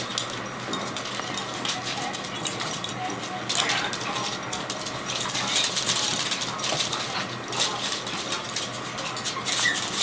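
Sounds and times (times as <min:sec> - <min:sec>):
dogs whining: 0:08.6 - 0:10.0.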